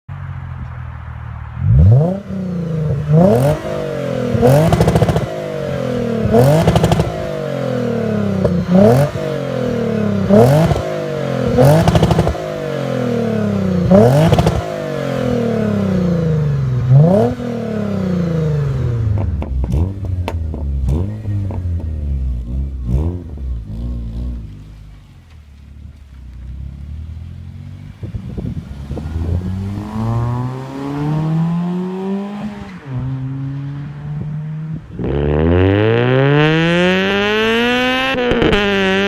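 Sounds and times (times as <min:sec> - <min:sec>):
car engine revving: 0:00.2 - 0:39.0.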